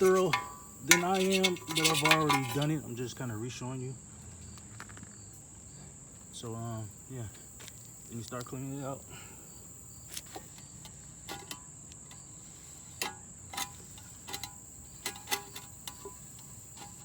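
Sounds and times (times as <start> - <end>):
metal pan taps and clinks: 0.0 - 2.6.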